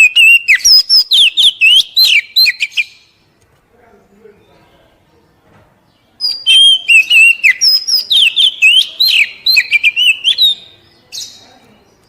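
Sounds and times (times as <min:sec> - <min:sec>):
bird whistles and chirps: 0:00.0 - 0:03.1, 0:06.2 - 0:11.4.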